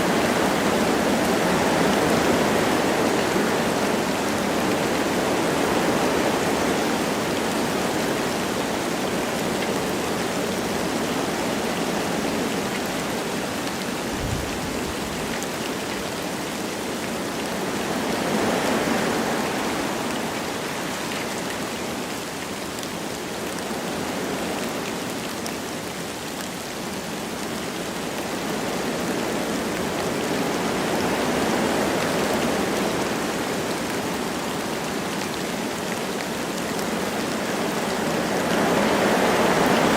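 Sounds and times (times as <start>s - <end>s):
light rain falling: 0.0s - 39.9s
wind through trees: 0.0s - 39.9s.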